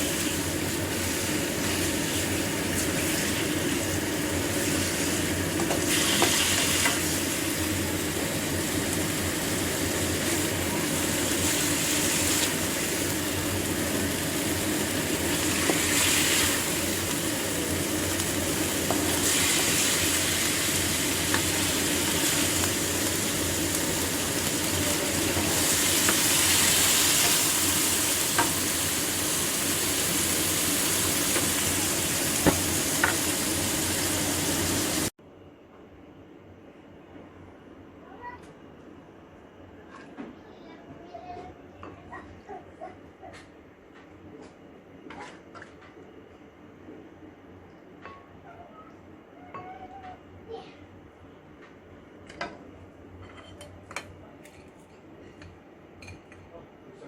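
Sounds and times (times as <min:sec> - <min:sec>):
food sizzling in a pan: 0:00.0 - 0:35.1.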